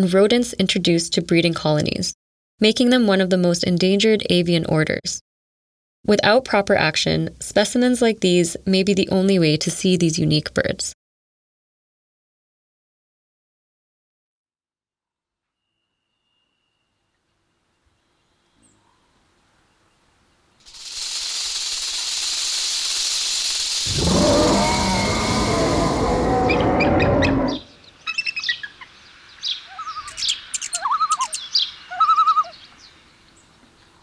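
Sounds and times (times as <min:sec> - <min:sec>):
rushing hiss: 0:20.7 - 0:27.5
bird chirps: 0:22.9 - 0:33.5
dense overlapping bird calls: 0:23.6 - 0:33.6.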